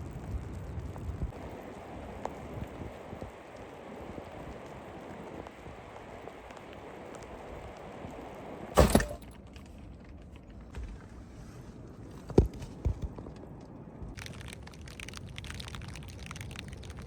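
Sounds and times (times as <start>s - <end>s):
steady rain hiss: 0.0s - 8.8s.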